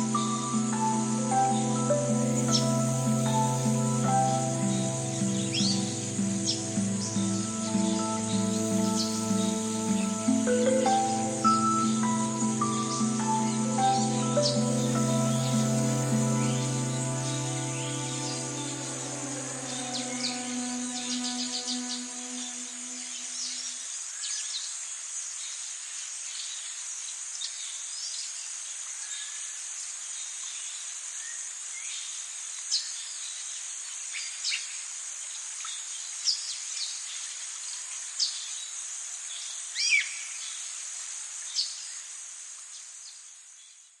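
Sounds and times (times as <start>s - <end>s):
high-pitched insect chorus: 0.0s - 27.6s.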